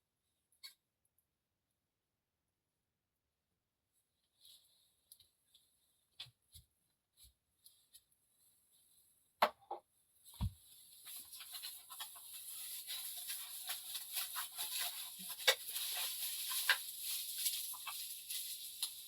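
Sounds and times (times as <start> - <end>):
small fire hissing and crackling: 10.3 - 19.0.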